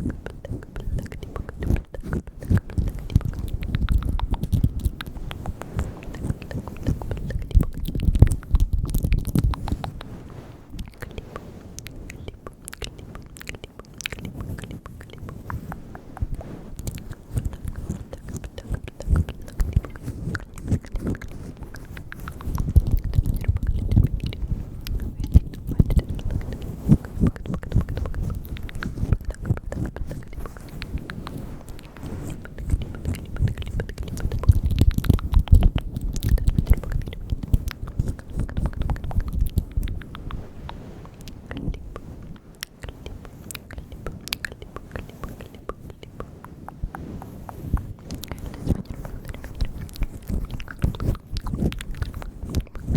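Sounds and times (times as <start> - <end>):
wet mouth clicks and smacks: 0.0 - 52.9
soft low thumps: 15.2 - 40.5.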